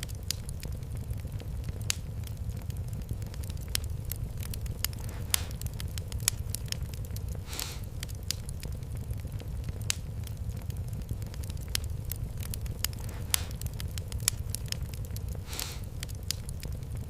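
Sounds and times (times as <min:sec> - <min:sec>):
fire crackling and popping: 0:00.0 - 0:17.0
low rumble of fire: 0:00.0 - 0:17.0
short hisses: 0:07.5 - 0:07.9, 0:15.5 - 0:15.9.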